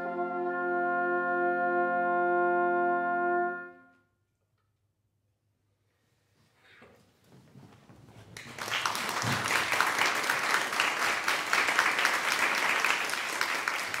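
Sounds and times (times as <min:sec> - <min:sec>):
audience applauding: 0:08.4 - 0:14.0.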